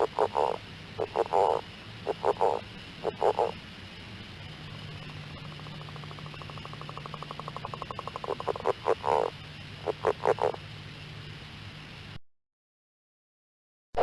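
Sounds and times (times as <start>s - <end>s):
frog trilling and croaking: 0.0s - 3.6s, 5.0s - 10.6s
faint steady low hum: 0.0s - 12.2s.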